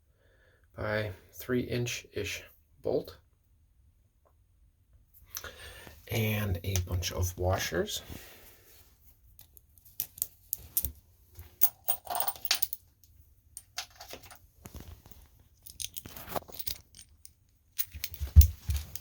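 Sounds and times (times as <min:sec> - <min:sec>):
metal washers clicking and jingling: 0:11.6 - 0:12.8, 0:15.6 - 0:19.0.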